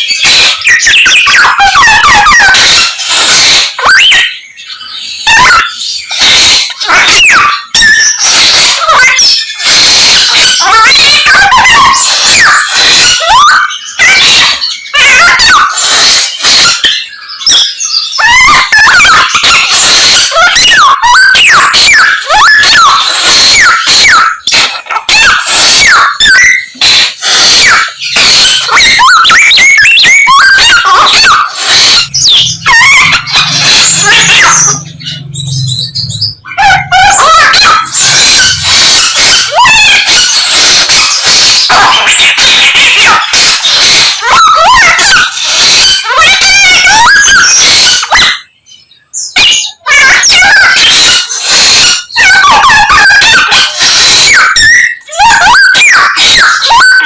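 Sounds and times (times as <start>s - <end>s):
lark singing mimicked calls: 0.0s - 48.2s
songbird singing: 31.8s - 36.9s.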